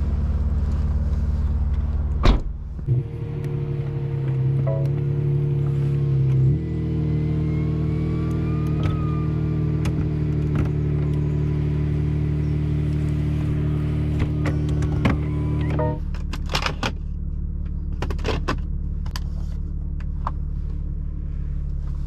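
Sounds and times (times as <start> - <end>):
car engine idling: 2.7 - 22.0.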